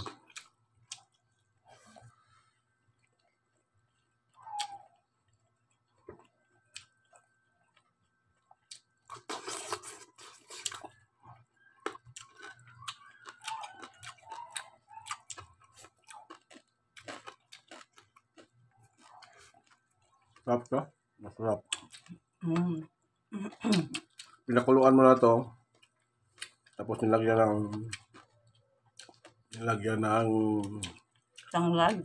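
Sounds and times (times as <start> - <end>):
person chewing crunchy food: 0.0 - 22.4, 23.1 - 24.7, 25.6 - 32.0
mouth clicks: 4.4 - 4.9.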